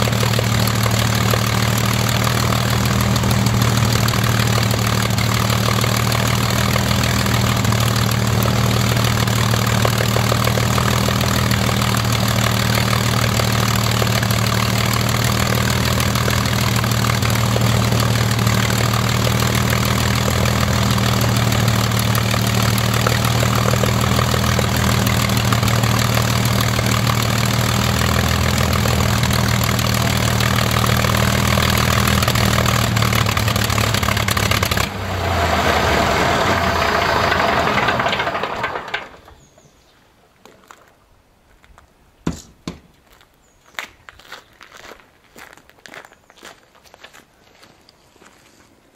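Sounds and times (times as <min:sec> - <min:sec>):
aero engine running steadily: 0:00.0 - 0:38.6.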